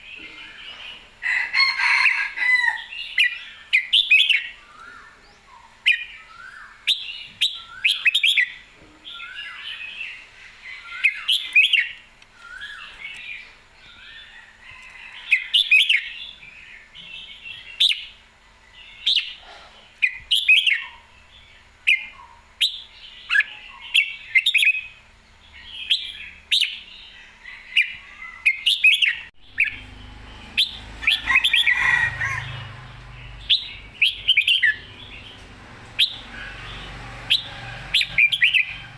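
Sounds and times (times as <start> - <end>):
low rumbling noise: 29.4 - 38.9.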